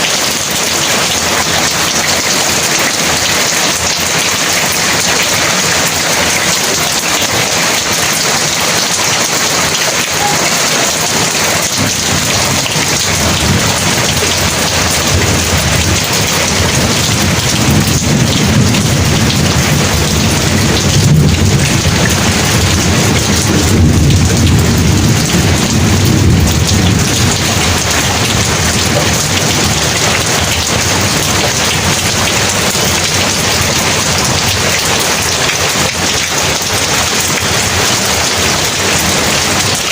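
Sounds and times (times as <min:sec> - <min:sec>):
heavy rain pouring: 0:00.0 - 0:39.9
low rumble of thunder: 0:11.3 - 0:39.8.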